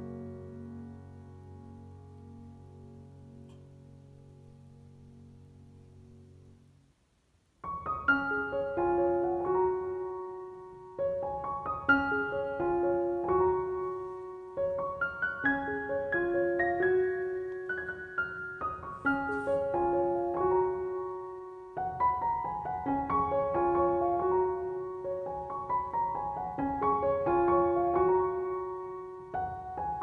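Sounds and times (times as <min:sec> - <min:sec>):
slow piano music: 0:00.0 - 0:06.8, 0:07.6 - 0:30.0.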